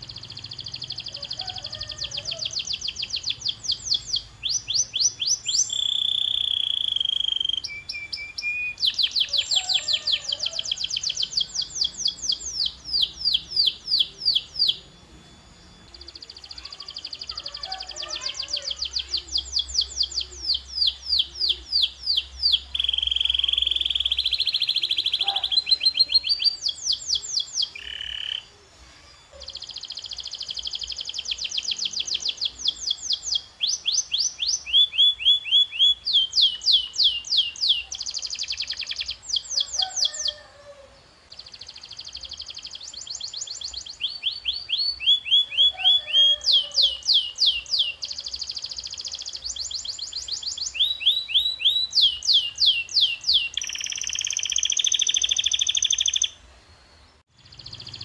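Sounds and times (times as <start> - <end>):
canary singing: 0.0 - 56.5, 57.3 - 58.0.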